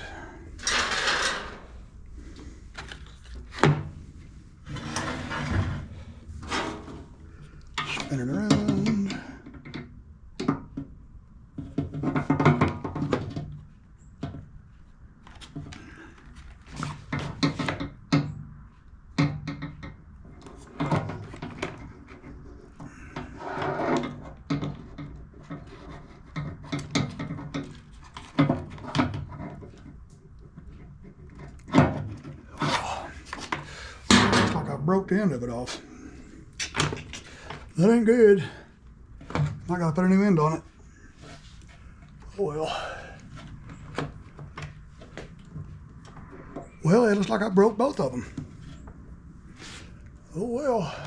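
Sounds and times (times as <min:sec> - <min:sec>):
tools knocking and rattling: 0:00.6 - 0:01.8, 0:11.6 - 0:14.6, 0:17.0 - 0:18.4, 0:23.9 - 0:32.5.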